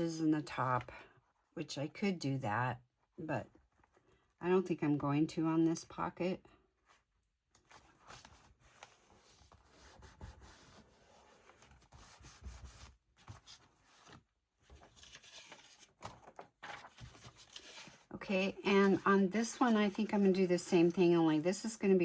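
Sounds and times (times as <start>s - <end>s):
paper rubbing and rustling: 7.6s - 21.0s.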